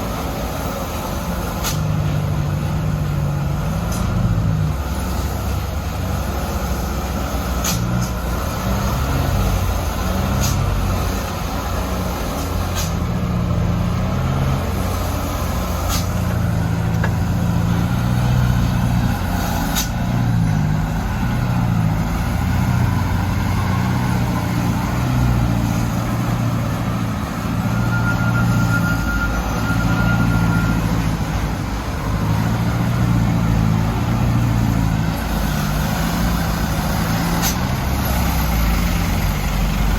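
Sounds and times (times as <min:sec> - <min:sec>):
truck diesel engine straining: 0:00.0 - 0:39.9.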